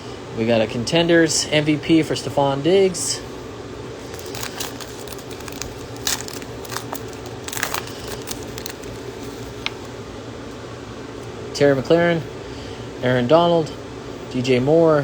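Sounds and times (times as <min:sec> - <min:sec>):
wrapper crinkling and tearing: 0:04.1 - 0:09.9
cards being handled: 0:04.1 - 0:10.0.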